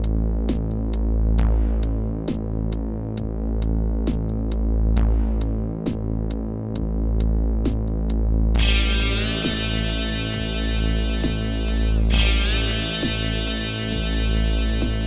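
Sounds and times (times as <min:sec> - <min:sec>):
drum machine hi-hat ticks: 0:02.3 - 0:05.1
pulsing synth bass line: 0:08.5 - 0:15.0
falling synth sweep: 0:08.6 - 0:15.0.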